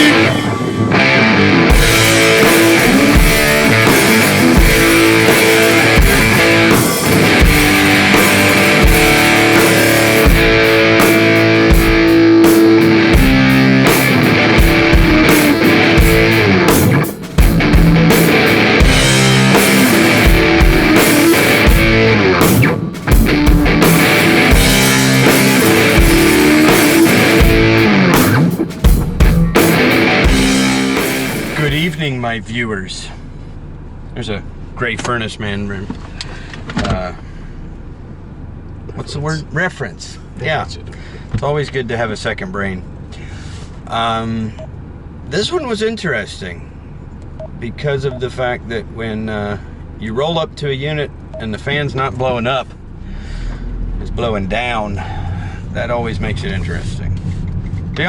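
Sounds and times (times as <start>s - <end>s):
drum kit beat: 0.0s - 32.0s
electric guitar: 0.0s - 32.0s
rock music: 0.0s - 32.0s.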